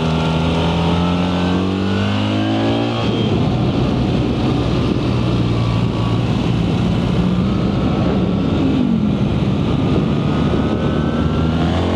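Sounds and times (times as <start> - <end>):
steady rushing noise: 3.0 - 11.9.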